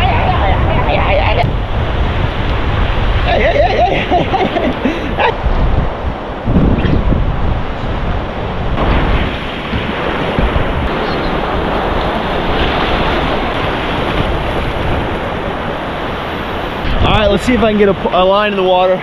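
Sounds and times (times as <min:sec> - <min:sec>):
surf breaking on beach: 0:00.0 - 0:19.0
wind buffeting microphone: 0:00.0 - 0:19.0.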